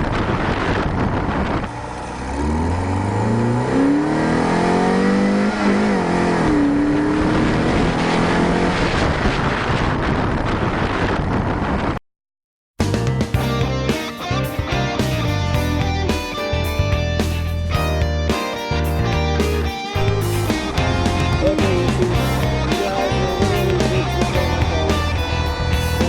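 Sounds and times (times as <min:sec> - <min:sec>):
wind and road noise: 0:00.0 - 0:12.0
car engine accelerating: 0:00.5 - 0:09.3, 0:20.0 - 0:26.0.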